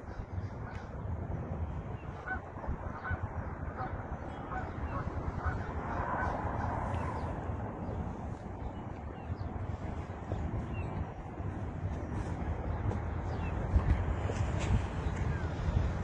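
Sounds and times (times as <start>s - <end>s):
steady low rumble: 0.0s - 16.0s
birds calling: 2.0s - 15.9s.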